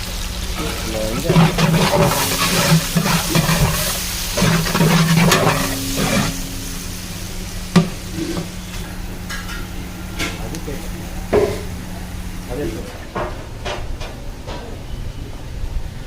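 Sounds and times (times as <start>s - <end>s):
oil sizzling: 0.0s - 13.0s
steady low hum: 0.0s - 13.7s
ladle scraping a pot: 0.6s - 6.9s.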